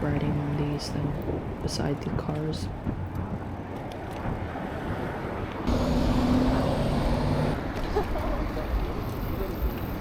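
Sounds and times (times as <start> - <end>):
road traffic: 0.0 - 10.0
vehicle engine passing close: 5.7 - 7.8.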